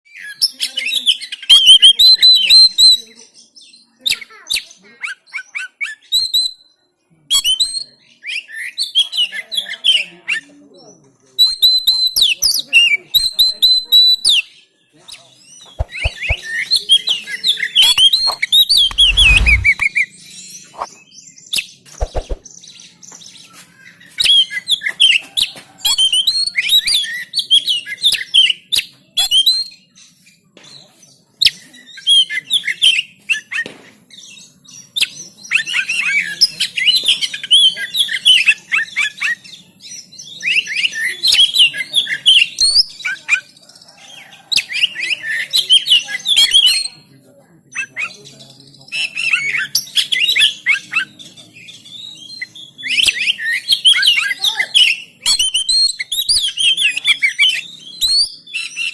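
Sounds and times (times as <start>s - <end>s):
bird singing whistles: 5.6s - 6.7s, 11.4s - 12.4s, 40.3s - 43.0s, 49.0s - 58.9s
low rumble: 18.9s - 19.8s.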